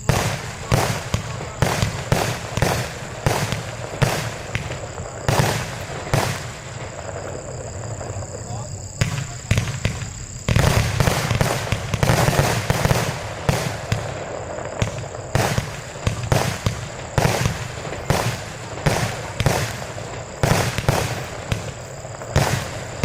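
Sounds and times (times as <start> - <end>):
fireworks bangs: 0.0 - 23.0
fireworks hiss: 0.0 - 23.0.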